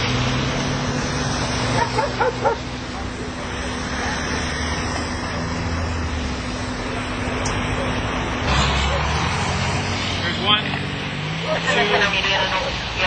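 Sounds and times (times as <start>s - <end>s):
vehicle engines idling: 0.0s - 13.0s
dog barking: 2.0s - 2.6s.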